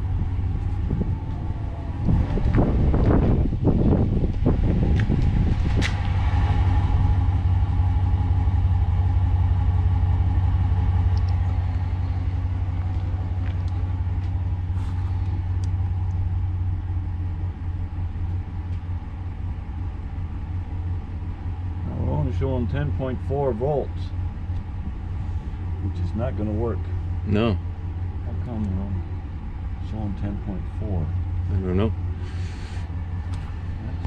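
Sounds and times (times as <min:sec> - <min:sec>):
truck engine idling: 0:00.0 - 0:34.0
faint clicks: 0:11.1 - 0:11.4.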